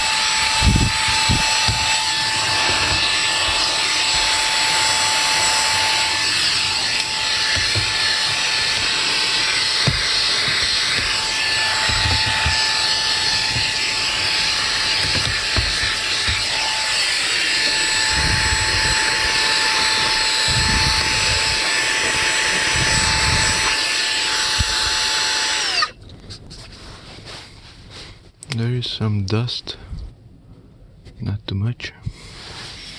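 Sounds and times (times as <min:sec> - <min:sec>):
vacuum motor spinning down: 0:00.0 - 0:25.9
vacuum cleaner motor whining: 0:00.0 - 0:26.0
dull knocks: 0:07.4 - 0:13.8, 0:14.5 - 0:16.7.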